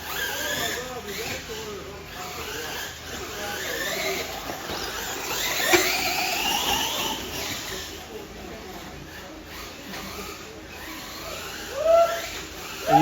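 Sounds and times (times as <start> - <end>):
electric toy truck motors whining: 9.6 - 13.0.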